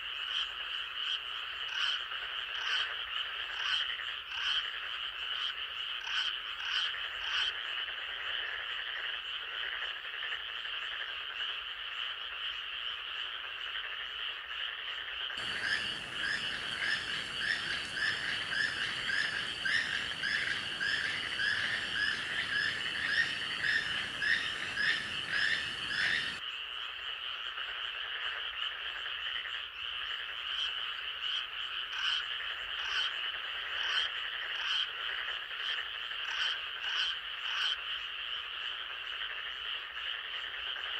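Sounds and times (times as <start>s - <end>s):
background hiss: 15.4s - 26.4s
frogs calling: 15.4s - 26.6s.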